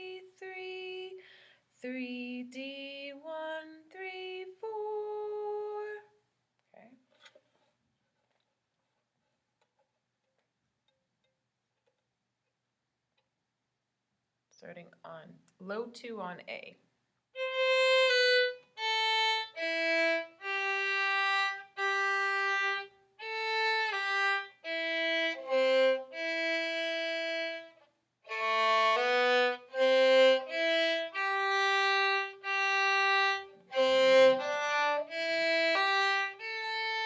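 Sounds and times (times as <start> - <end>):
solo violin melody: 0.0 - 1.2, 17.4 - 37.0.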